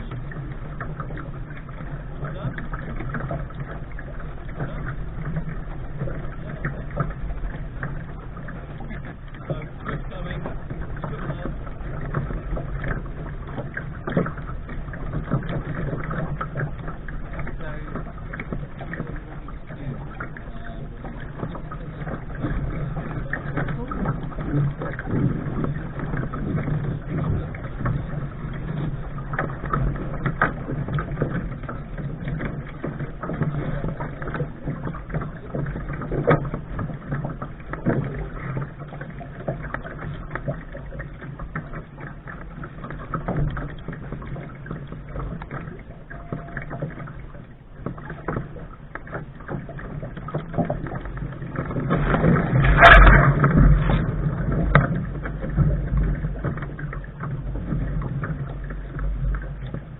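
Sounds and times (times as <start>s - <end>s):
water splashing against hull: 0.0s - 59.9s
wind on microphone: 49.7s - 59.9s.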